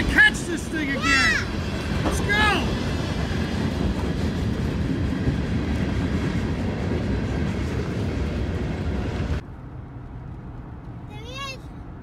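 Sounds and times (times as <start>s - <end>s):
freight train rumbling past: 0.0s - 12.0s.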